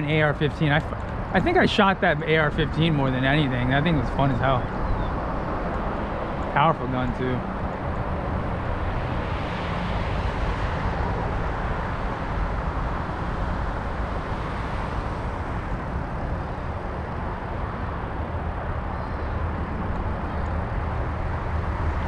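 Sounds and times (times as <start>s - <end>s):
heavy low rumble: 0.0s - 5.0s
road noise: 0.0s - 22.0s.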